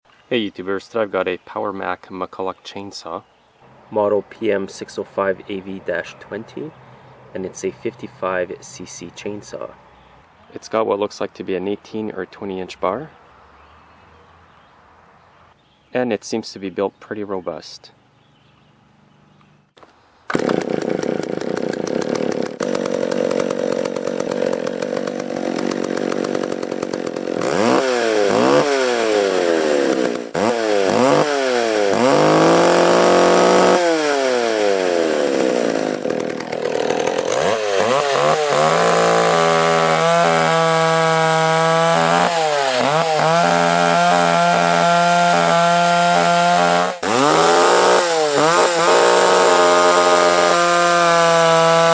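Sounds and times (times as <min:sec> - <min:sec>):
chainsaw revving: 0:20.3 - 0:51.9.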